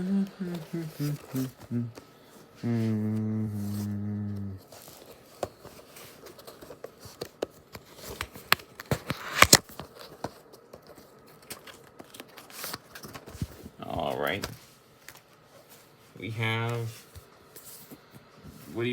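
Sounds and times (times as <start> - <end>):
person humming: 0.0 - 4.7
packaging crinkling and tearing: 4.7 - 14.5.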